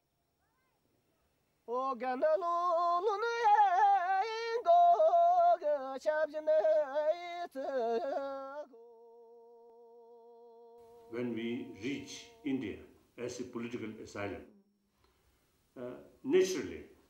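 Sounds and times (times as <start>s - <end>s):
person singing opera: 1.7s - 12.8s.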